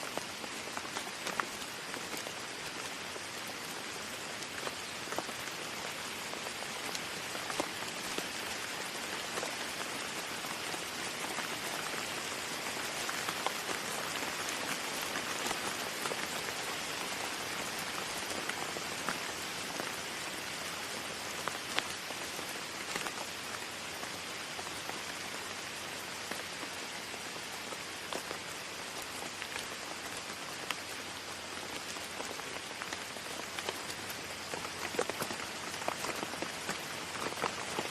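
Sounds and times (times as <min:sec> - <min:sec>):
rain pattering: 0:00.0 - 0:37.9.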